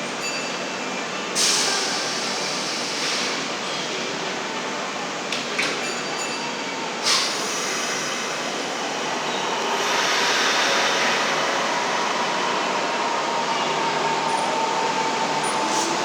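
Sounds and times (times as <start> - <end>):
steady train tone: 6.2 - 16.0
electric train pulling away: 7.0 - 16.0.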